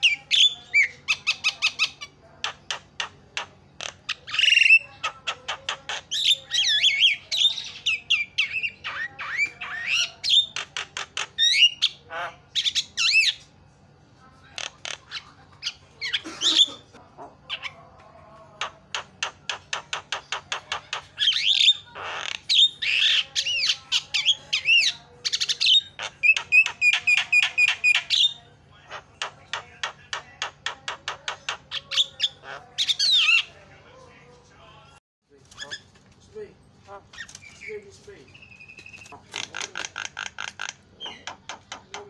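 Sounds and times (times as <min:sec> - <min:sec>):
myna bird calling: 0:18.6 - 0:33.6, 0:36.8 - 0:42.0.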